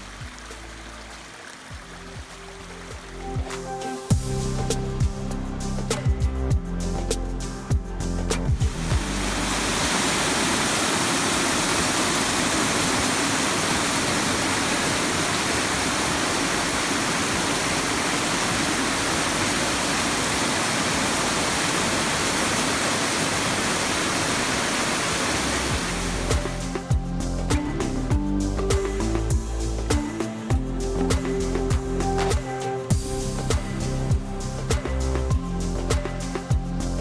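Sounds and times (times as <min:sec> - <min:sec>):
waterfall rushing: 0:00.0 - 0:04.1, 0:08.7 - 0:27.0
background music: 0:00.0 - 0:10.3, 0:25.6 - 0:37.0.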